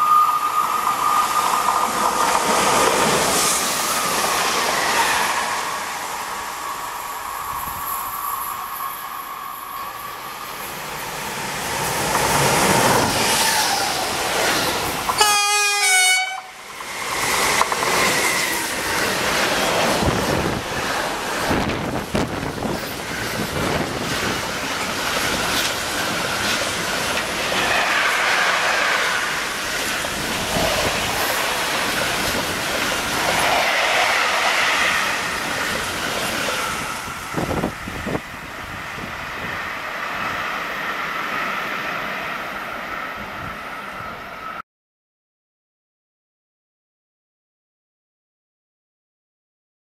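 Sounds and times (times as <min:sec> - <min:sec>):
train wheels rushing over rails: 0:00.0 - 0:15.2, 0:16.6 - 0:42.6
short train horn blast: 0:15.2 - 0:16.6.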